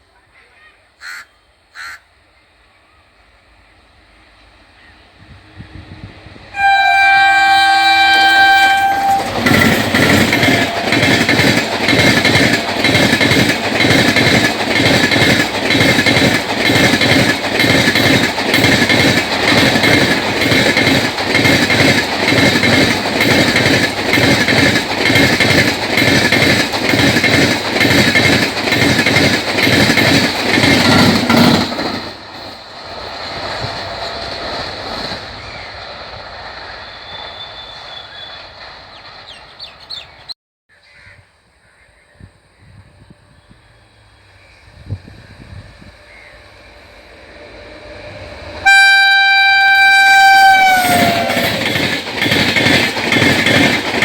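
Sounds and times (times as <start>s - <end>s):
faint train rumble: 0.0s - 40.3s, 40.9s - 54.0s
train wheels clattering on track: 5.2s - 40.3s, 47.8s - 54.0s
locomotive horn: 6.5s - 11.9s, 48.6s - 51.6s.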